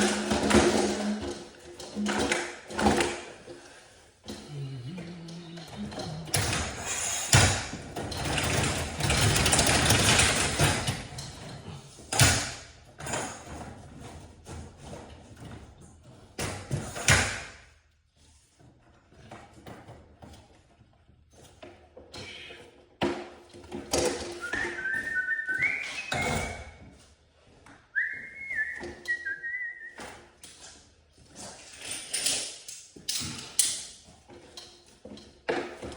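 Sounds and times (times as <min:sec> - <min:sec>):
knocks and clanks of work: 0:00.0 - 0:17.7, 0:19.1 - 0:27.0, 0:29.9 - 0:35.9
mechanical rattling and clattering: 0:05.6 - 0:17.2
person whistling a tune: 0:24.4 - 0:26.8, 0:28.0 - 0:30.1.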